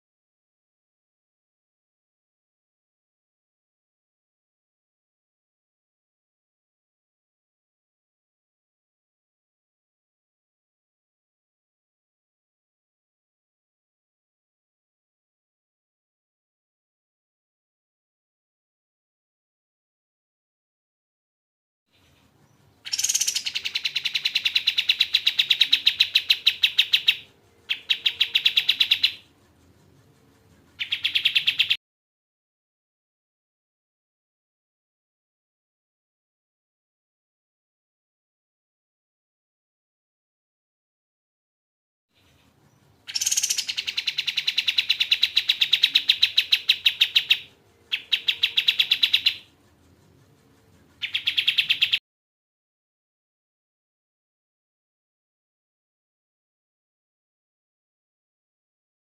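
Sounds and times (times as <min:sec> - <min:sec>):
bird singing rapid sharp notes: 0:22.0 - 0:31.8, 0:42.2 - 0:52.0.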